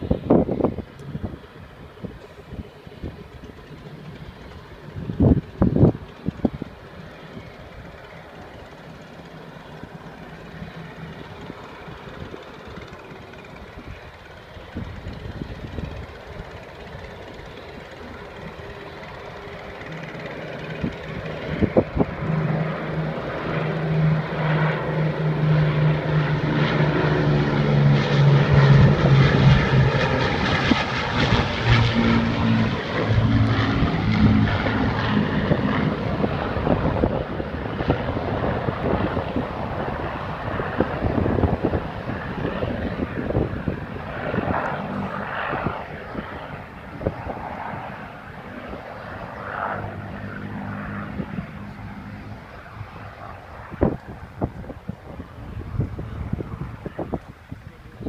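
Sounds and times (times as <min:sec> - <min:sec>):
propeller aircraft flying past: 0:00.0 - 0:58.0.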